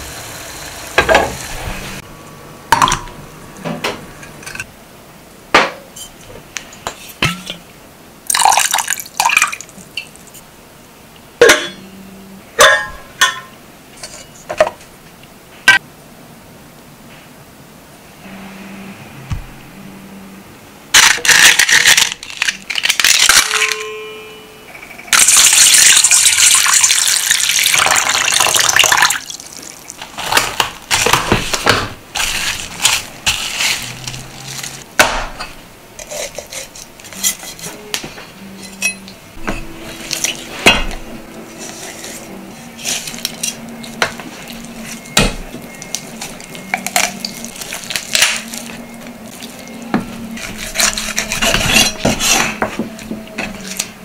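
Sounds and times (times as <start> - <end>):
water pouring: 8.3 - 9.8, 25.2 - 30.0
dishes clinking: 11.4 - 12.0, 12.6 - 14.8, 35.3 - 42.2
dried kelp crackling: 45.6 - 52.4.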